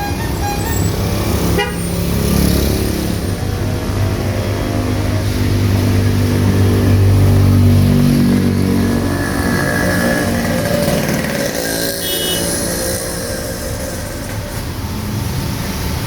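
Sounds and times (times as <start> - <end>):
vehicle engine passing: 0.0 - 16.0.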